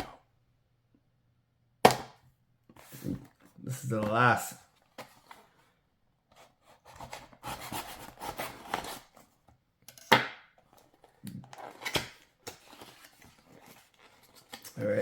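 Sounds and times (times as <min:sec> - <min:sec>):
packaging rustling and crinkling: 0:10.7 - 0:15.0.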